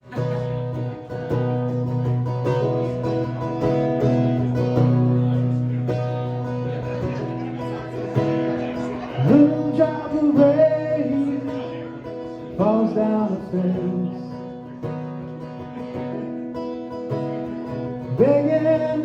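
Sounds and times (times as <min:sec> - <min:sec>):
acoustic guitar strumming chords: 0:00.0 - 0:19.0
wordless voice singing: 0:07.5 - 0:14.7, 0:17.8 - 0:19.0.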